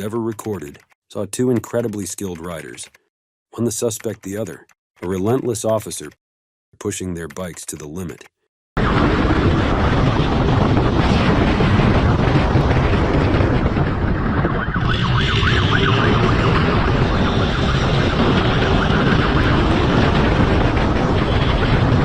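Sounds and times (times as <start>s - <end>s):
wind rush: 8.8s - 22.0s
motorcycle running at speed: 13.2s - 22.0s
police siren wailing: 14.2s - 20.6s.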